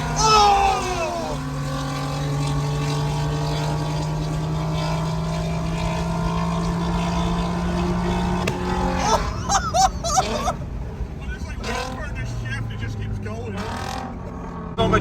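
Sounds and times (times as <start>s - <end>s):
person's excited voice: 0.1s - 1.4s.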